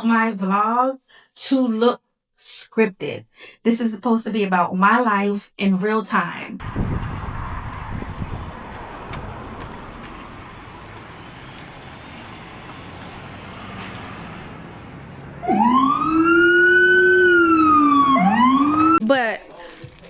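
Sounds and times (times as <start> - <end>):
emergency vehicle siren wailing: 6.6 - 19.0.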